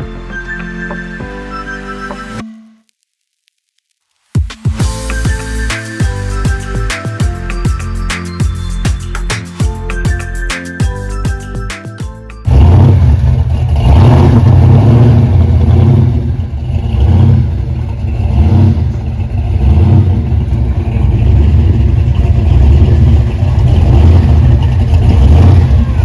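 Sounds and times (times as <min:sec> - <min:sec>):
car engine rumbling: 0:12.4 - 0:26.0.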